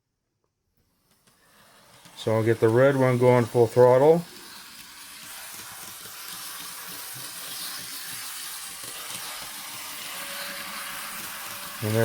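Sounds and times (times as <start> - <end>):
model tram motor whirring: 4.4 - 12.0.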